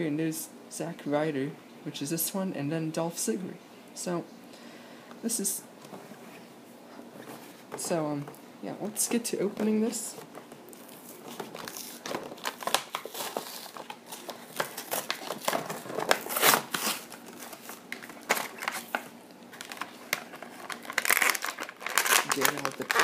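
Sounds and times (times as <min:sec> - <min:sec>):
plastic and cardboard crinkling: 0:05.9 - 0:23.0.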